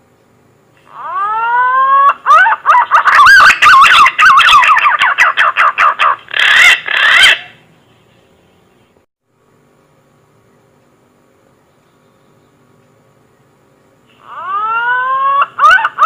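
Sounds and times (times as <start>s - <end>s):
warbling whistled bird lure call: 0.8s - 7.6s.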